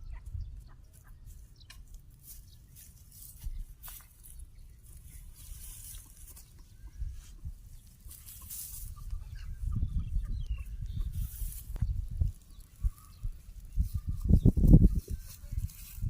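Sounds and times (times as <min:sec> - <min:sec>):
rustling: 0:01.9 - 0:09.2, 0:11.1 - 0:16.0.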